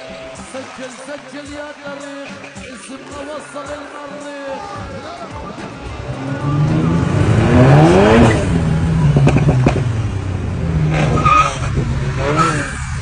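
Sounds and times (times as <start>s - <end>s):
car engine revving: 4.9s - 13.0s
sharp exhaust cracks: 5.7s - 13.0s.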